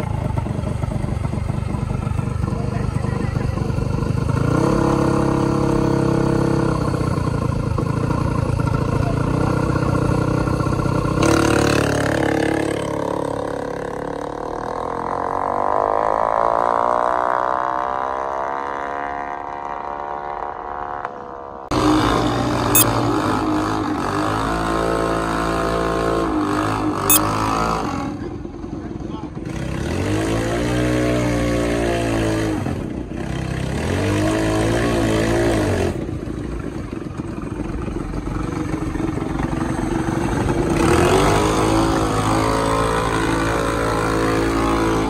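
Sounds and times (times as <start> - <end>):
engine running steadily: 0.0 - 11.3.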